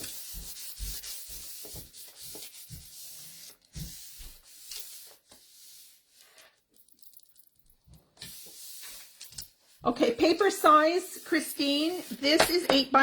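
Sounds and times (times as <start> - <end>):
wax paper scratching on cardstock: 0.0 - 6.4, 8.2 - 13.0.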